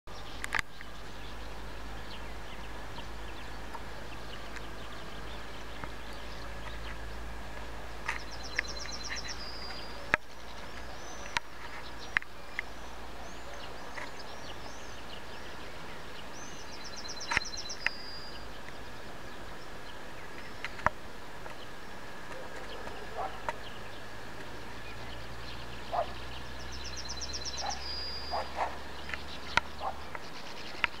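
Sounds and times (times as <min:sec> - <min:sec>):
small bird chirps: 0:08.1 - 0:18.8, 0:24.8 - 0:31.0
songbird trilling: 0:08.1 - 0:18.8, 0:24.8 - 0:31.0.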